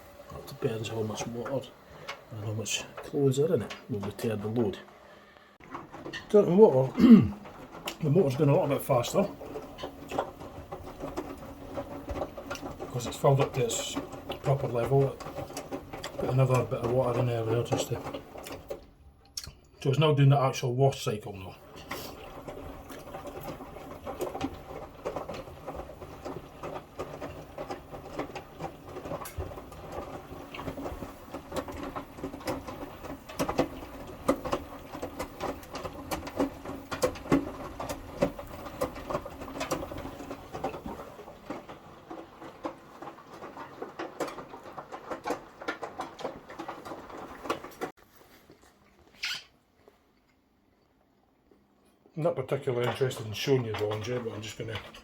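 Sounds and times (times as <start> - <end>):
washing machine drum turning: 5.6 - 18.8
water splashing and sloshing: 21.3 - 50.2.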